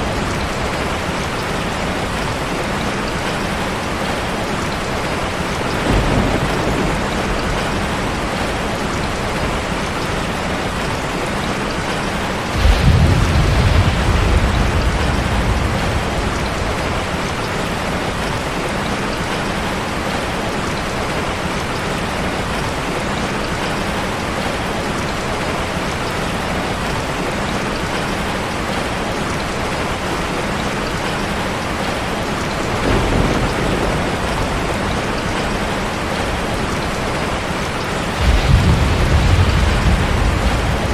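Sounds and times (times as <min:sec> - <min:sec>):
thunder crack and rumble: 0:00.0 - 0:21.7, 0:30.6 - 0:40.9
steady rain falling: 0:00.0 - 0:40.9.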